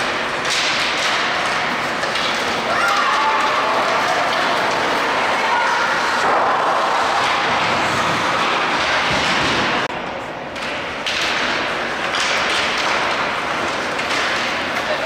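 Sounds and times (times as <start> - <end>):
skates on ice: 0.0 - 15.0
arena crowd noise: 1.5 - 10.6, 13.2 - 15.0.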